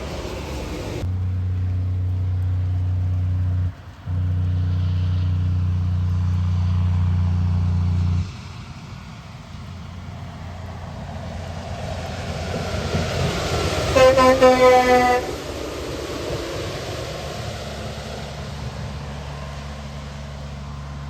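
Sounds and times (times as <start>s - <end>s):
quiet rumble: 0.0s - 13.4s
vehicle engine low hum: 0.0s - 21.0s.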